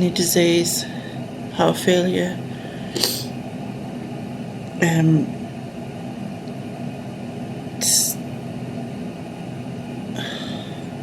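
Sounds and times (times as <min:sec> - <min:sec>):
low machine hum: 0:00.0 - 0:11.0
short hissing sniff: 0:02.9 - 0:03.3.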